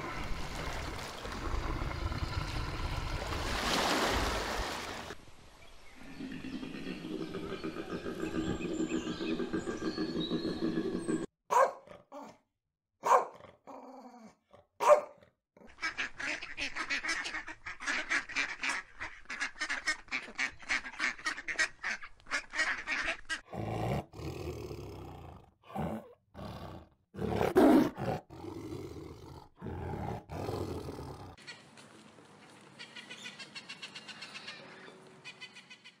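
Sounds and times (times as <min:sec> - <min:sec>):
tiger growling and snarling: 0:00.9 - 0:03.1, 0:23.5 - 0:31.4
ducks quacking: 0:15.6 - 0:23.5.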